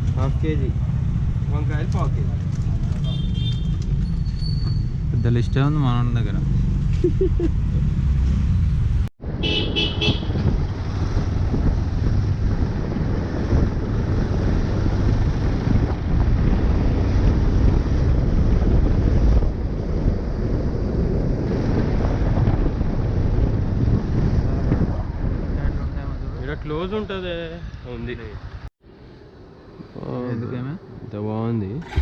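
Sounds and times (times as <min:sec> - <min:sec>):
wind rumbling on microphone: 0:00.0 - 0:30.0
road traffic noise: 0:00.0 - 0:32.0
vehicle horn toots: 0:09.4 - 0:10.4.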